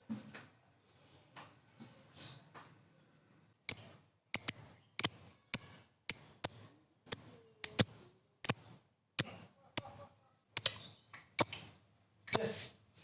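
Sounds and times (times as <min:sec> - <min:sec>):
bird giving high-pitched chirps: 0:03.7 - 0:11.7.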